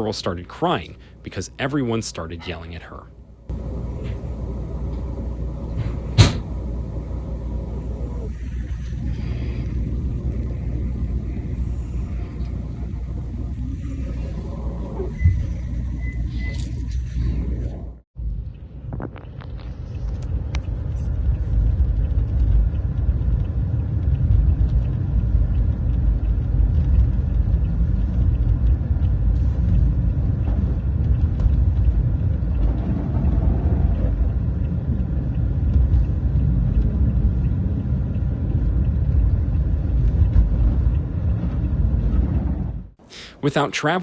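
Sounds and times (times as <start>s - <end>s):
loud low rumble: 3.4s - 43.0s.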